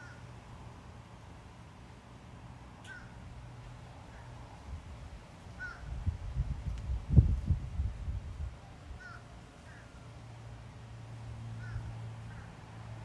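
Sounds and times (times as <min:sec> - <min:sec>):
crow cawing in distance: 0:00.0 - 0:00.3, 0:02.8 - 0:03.2, 0:05.6 - 0:05.9, 0:09.0 - 0:10.0, 0:11.5 - 0:12.6
low microphone rumble: 0:05.8 - 0:08.6.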